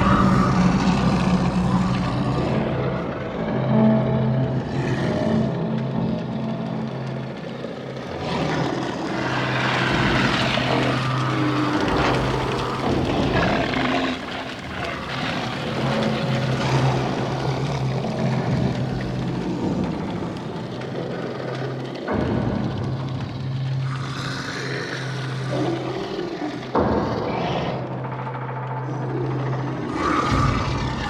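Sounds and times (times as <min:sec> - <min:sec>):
churning mechanical noise: 0:00.0 - 0:27.1.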